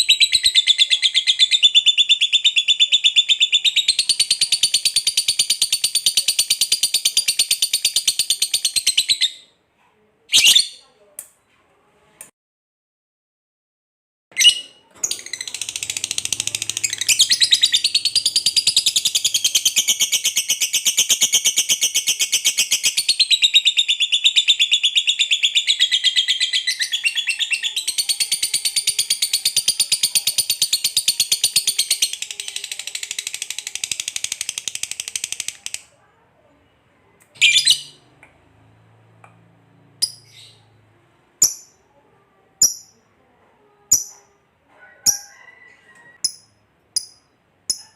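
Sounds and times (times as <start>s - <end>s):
bird chattering trill: 14.4s - 35.9s.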